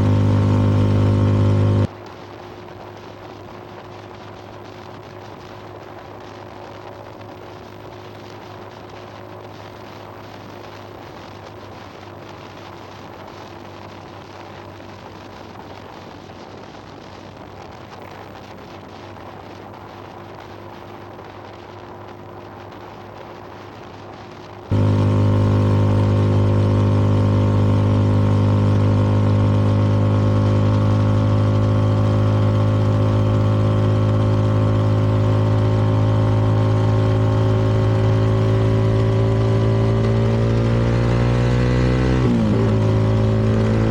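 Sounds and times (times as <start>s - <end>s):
motorcycle engine cruising: 0.0s - 1.9s, 18.7s - 43.9s.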